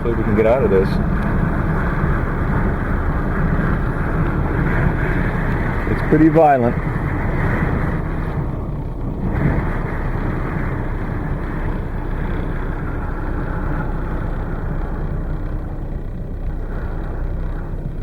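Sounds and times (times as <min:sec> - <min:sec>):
blizzard wind buffeting a car: 0:00.0 - 0:18.0.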